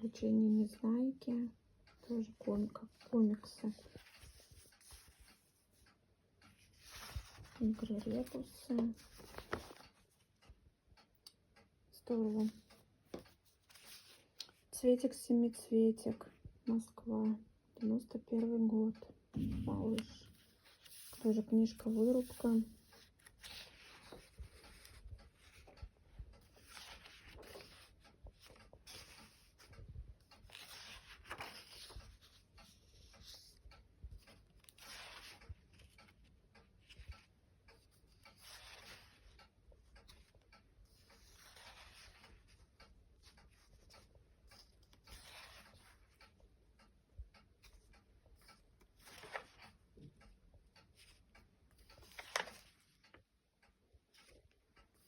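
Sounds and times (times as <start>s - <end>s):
book pages turning: 2.1s - 10.3s, 12.3s - 14.7s, 19.4s - 36.2s, 36.8s - 46.3s, 48.4s - 49.8s, 51.0s - 53.2s.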